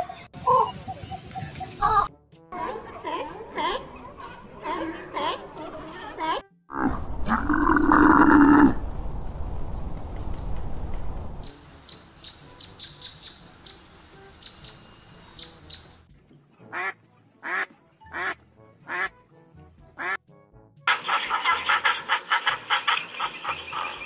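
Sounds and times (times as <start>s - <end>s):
camel calling and grumbling: 6.7s - 8.9s
duck quacking: 16.7s - 19.1s, 20.0s - 20.2s, 20.9s - 24.0s.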